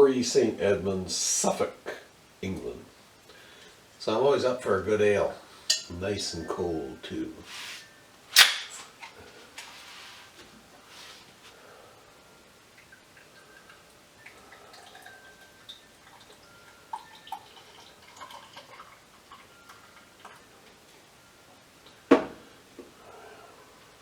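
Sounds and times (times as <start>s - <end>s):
ale pouring into a glass: 12.8s - 20.4s.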